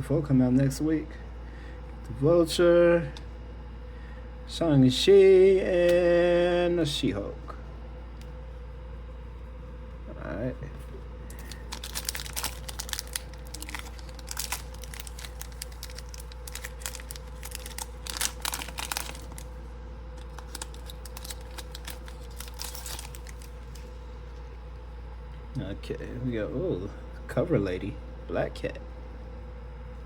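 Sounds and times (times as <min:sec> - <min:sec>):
wrapper crinkling and tearing: 0:11.4 - 0:19.6, 0:20.2 - 0:23.8.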